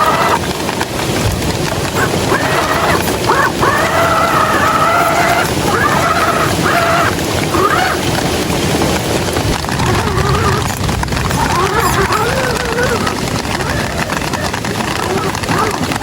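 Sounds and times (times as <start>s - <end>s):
heavy rain hissing: 0.0s - 16.0s
rushing water: 0.0s - 16.0s
whining tone: 9.4s - 15.7s.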